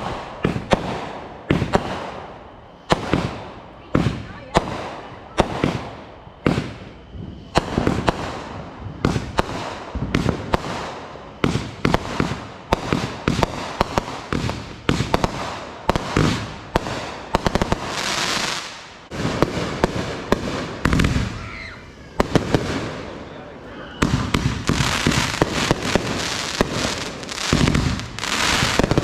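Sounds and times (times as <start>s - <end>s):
fireworks bangs and pops: 0.0s - 29.0s
fireworks hissing: 0.0s - 29.0s
deep firework boom: 2.9s - 17.9s, 24.0s - 29.0s.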